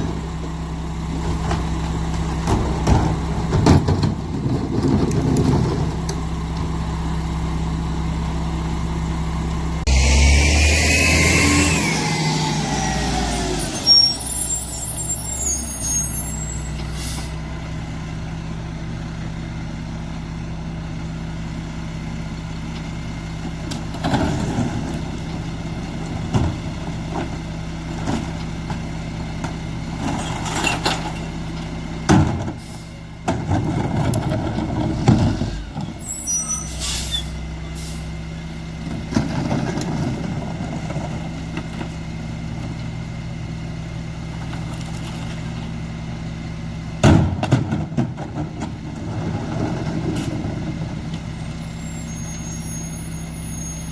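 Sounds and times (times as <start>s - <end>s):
diesel truck engine idling: 0.0s - 4.5s, 5.8s - 10.5s, 33.9s - 39.1s, 40.1s - 53.9s.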